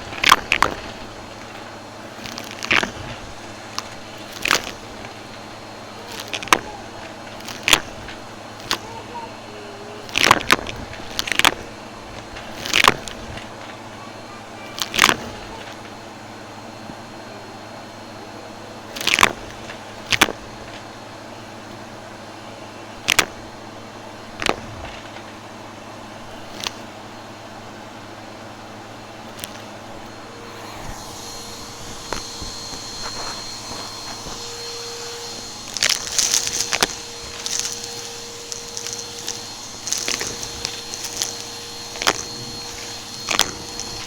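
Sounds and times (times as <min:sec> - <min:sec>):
debris crunching and popping: 0:00.0 - 0:08.9, 0:10.1 - 0:13.7, 0:32.1 - 0:44.0
high whine: 0:00.0 - 0:44.0
vacuum cleaner running: 0:00.0 - 0:44.0.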